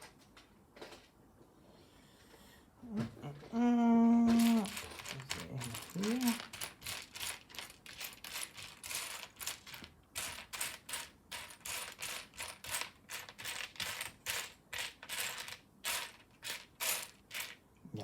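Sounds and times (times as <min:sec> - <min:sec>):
plastic bricks clattering: 0:04.3 - 0:17.6.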